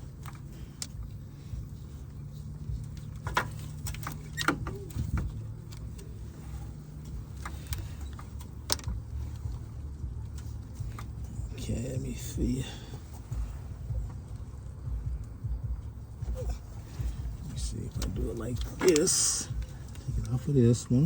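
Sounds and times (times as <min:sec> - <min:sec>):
steady low hum: 0:00.0 - 0:21.0
tools clicking and clinking: 0:17.0 - 0:20.4.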